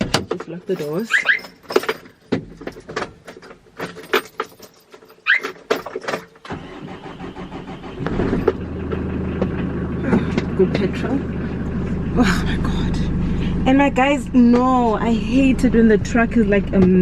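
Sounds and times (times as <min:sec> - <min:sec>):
clicks and knocks in cab: 0:00.0 - 0:00.6, 0:01.6 - 0:04.7
truck engine starting and idling: 0:06.4 - 0:17.0.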